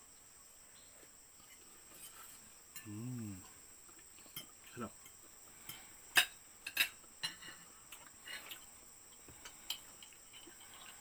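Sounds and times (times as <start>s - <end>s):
cutlery clinking on a plate: 4.3s - 8.7s.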